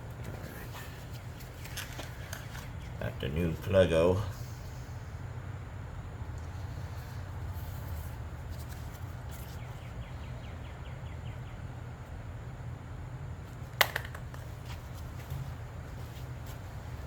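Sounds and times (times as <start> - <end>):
steady low hum: 0.0 - 17.0
bird chirping: 9.4 - 11.7.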